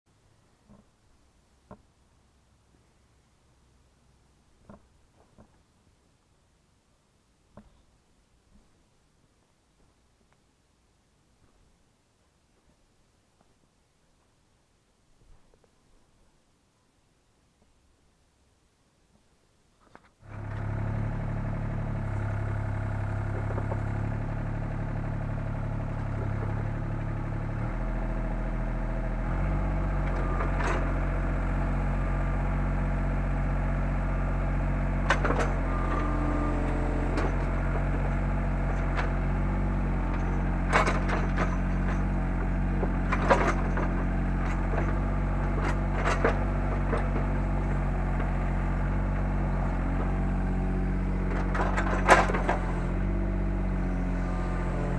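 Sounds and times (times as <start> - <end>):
excavator diesel engine running: 20.2 - 54.9.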